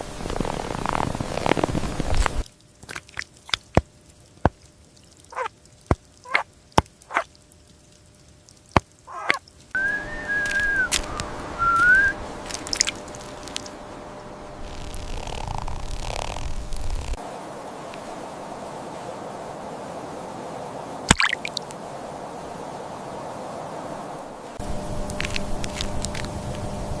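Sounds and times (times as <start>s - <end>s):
high whistled call: 9.1s - 13.0s
sharp clicks and chirps: 9.1s - 13.8s.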